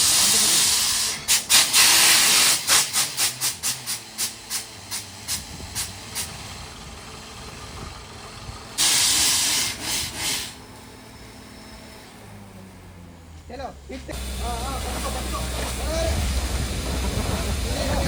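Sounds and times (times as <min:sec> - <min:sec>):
compressed air blasts: 0:00.0 - 0:06.4, 0:08.8 - 0:10.6
low engine hum: 0:02.1 - 0:18.0.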